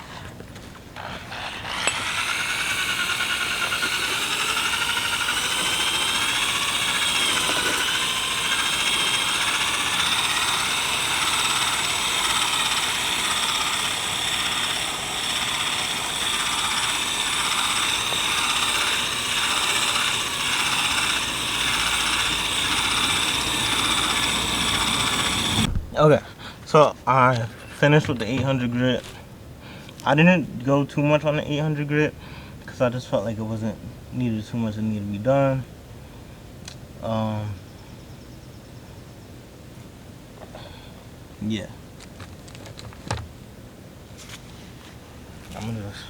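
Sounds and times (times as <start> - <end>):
power drill sanding plastic: 0.0 - 25.7, 27.4 - 29.2, 44.9 - 46.0.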